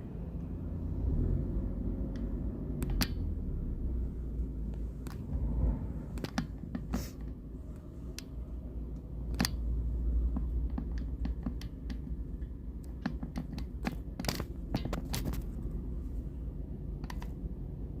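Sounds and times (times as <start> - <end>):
sharp clicks and knocks: 2.1 - 3.3, 4.7 - 5.5, 6.1 - 7.5, 9.0 - 15.9, 17.0 - 17.5.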